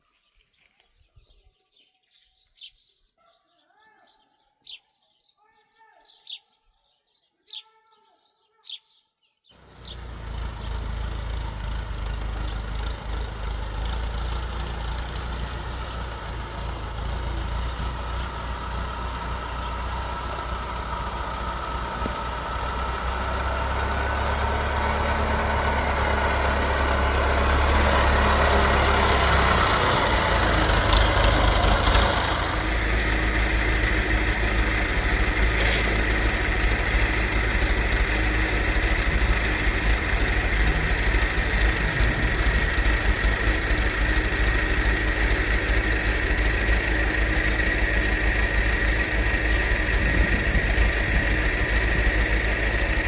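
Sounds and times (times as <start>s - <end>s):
bird chirps: 0.0s - 22.6s, 33.6s - 52.6s
motor engine humming: 9.6s - 53.0s.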